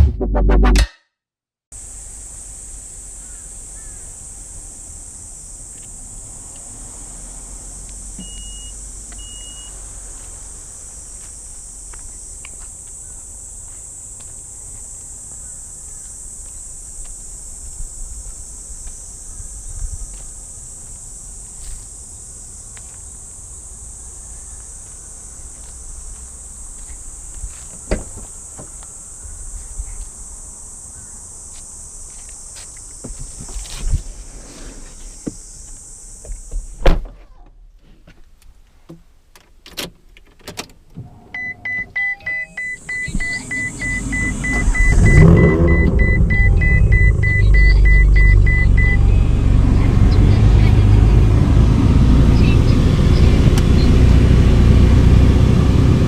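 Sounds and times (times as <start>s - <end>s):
car engine starting and running: 40.8s - 56.0s
electronic chime beeping: 41.4s - 49.3s.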